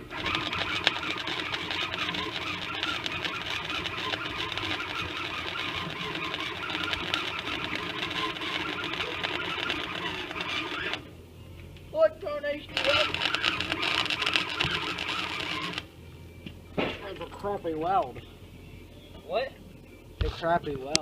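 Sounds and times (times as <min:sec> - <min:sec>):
welder arc crackling: 0:00.0 - 0:11.1, 0:12.5 - 0:15.9.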